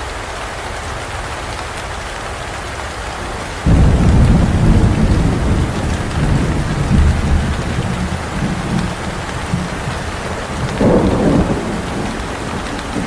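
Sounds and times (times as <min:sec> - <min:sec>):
steady rain hissing: 0:00.0 - 0:13.0
deep rumble of thunder: 0:03.7 - 0:13.0.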